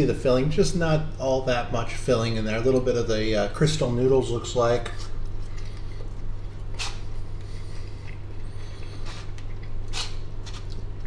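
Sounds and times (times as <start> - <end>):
steady low hum: 0.0 - 11.0
man chewing: 4.9 - 11.0.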